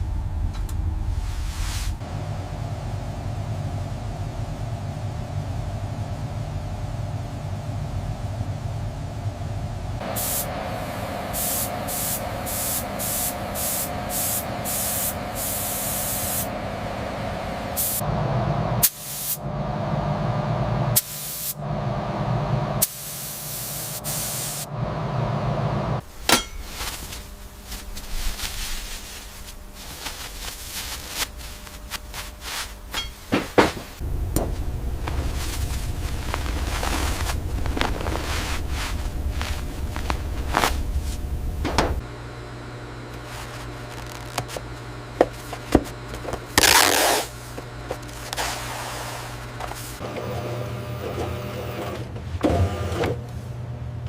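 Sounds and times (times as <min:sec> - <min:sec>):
low hum: 0:00.0 - 0:18.8, 0:24.0 - 0:50.0
short hissing sprays: 0:10.0 - 0:16.5, 0:17.8 - 0:18.0, 0:18.9 - 0:19.4, 0:21.0 - 0:21.6, 0:22.8 - 0:24.7.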